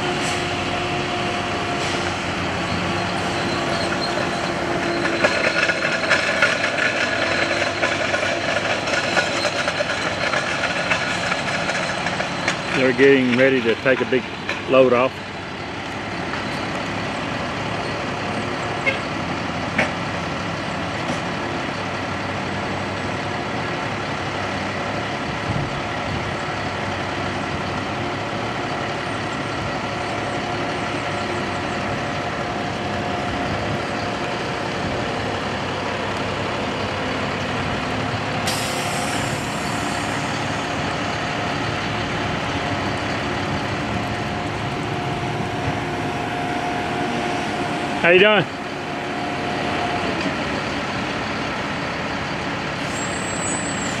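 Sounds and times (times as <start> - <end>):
heavy truck engine running: 0.0 - 54.0
air brakes hiss: 1.7 - 2.2, 38.4 - 40.4, 52.8 - 54.0.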